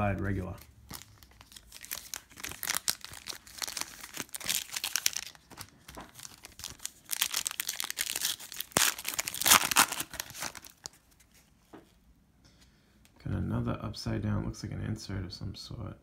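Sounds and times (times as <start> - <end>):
foil wrapper crinkling and tearing: 0.4 - 11.3.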